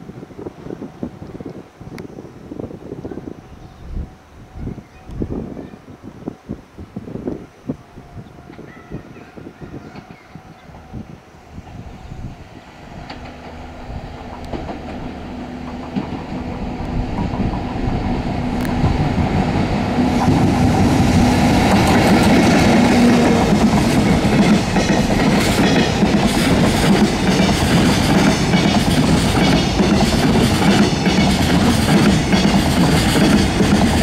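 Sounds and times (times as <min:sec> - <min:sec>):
electric locomotive hum: 0:00.0 - 0:34.0
wheels clacking over rail joints: 0:12.9 - 0:34.0.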